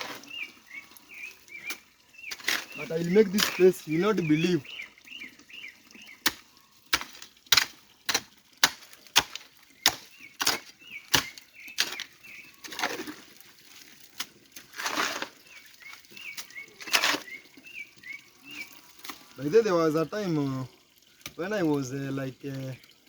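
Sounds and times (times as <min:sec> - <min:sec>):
small birds chirping: 0:00.0 - 0:06.8, 0:09.6 - 0:13.2, 0:15.2 - 0:22.9.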